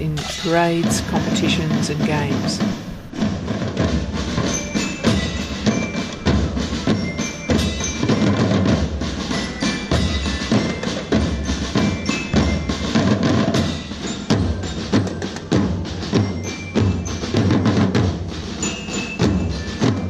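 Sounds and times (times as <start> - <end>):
drums beating march rhythm: 0.0 - 20.0
high bell notes: 3.8 - 20.0.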